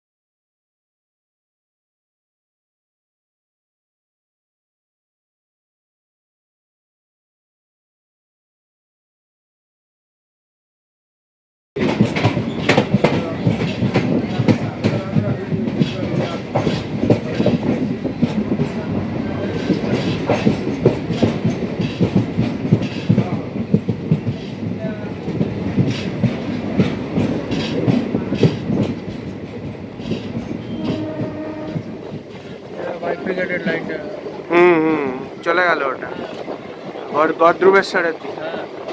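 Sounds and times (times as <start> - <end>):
train wheels clattering over rails: 11.8 - 34.5, 35.2 - 38.9.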